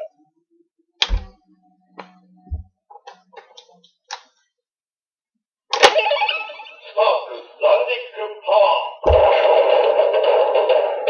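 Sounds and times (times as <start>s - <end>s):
toy electronic voice and effects: 5.8s - 9.0s.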